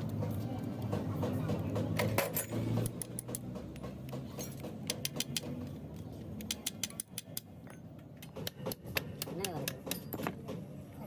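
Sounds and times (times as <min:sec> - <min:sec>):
sharp metallic clinks and taps: 0:00.0 - 0:10.4.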